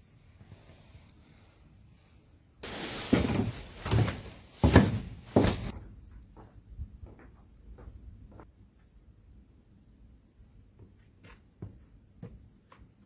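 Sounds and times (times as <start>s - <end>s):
heavy knocks and bumps: 2.6s - 5.7s
rustling: 2.6s - 5.7s.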